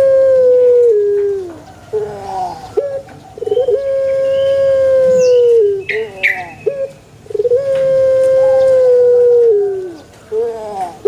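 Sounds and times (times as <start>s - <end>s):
dove cooing: 0.0s - 11.0s.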